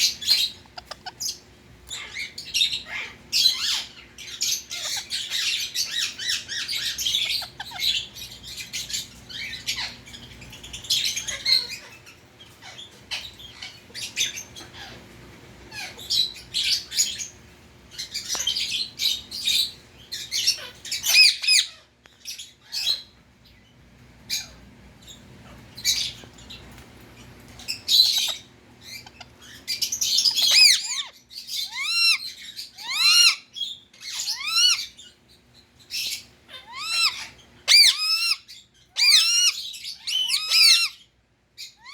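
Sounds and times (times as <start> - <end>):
parakeet squawking and chirping: 0.0 - 41.9.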